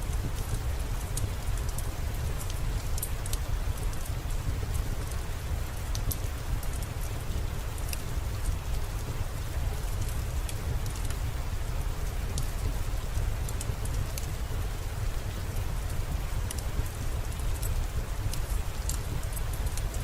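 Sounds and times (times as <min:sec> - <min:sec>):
steady rain: 0:00.0 - 0:20.0.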